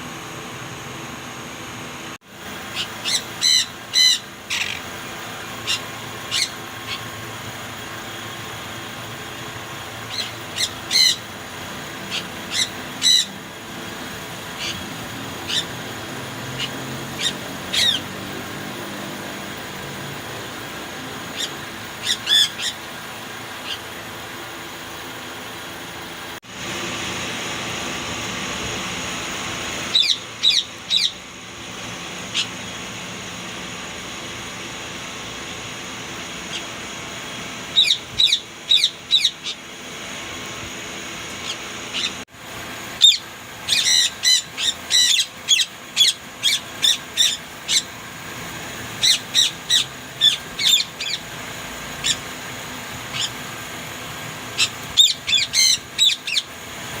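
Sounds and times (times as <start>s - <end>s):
parakeets squawking: 2.5s - 19.0s, 20.8s - 24.4s, 29.8s - 32.9s, 36.2s - 40.3s, 41.3s - 42.2s, 43.0s - 53.6s, 54.4s - 57.0s.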